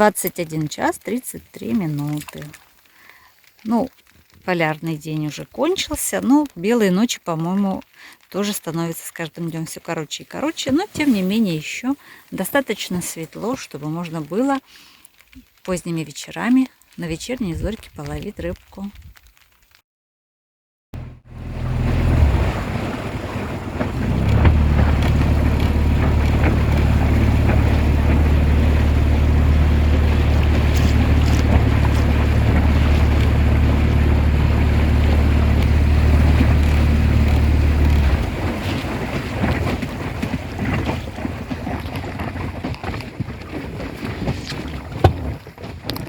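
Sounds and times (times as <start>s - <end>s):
wind: 0.0s - 19.8s, 21.0s - 46.0s
water rushing: 21.0s - 41.2s
outboard motor humming: 21.0s - 43.6s.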